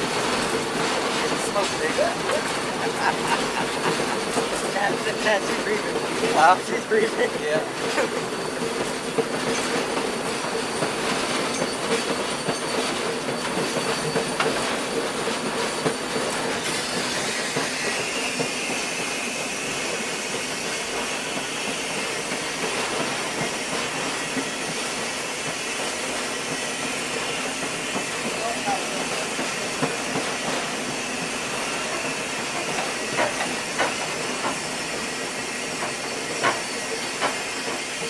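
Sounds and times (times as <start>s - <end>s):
train running on rails: 0.0s - 38.0s
high wheel squeal: 10.5s - 14.9s, 15.8s - 38.0s.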